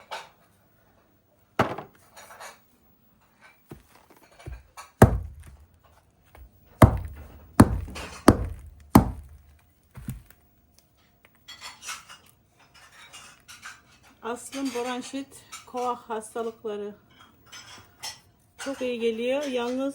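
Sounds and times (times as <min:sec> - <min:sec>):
heavy sharp chopping knocks: 0:05.0 - 0:05.6, 0:06.8 - 0:10.2.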